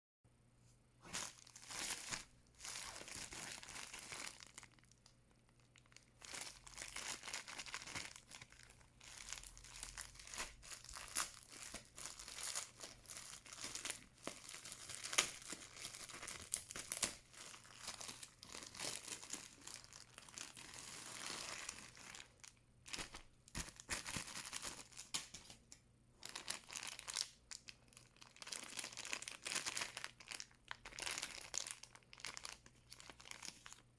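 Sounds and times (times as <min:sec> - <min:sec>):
packaging rustling and crinkling: 0:01.0 - 0:25.5.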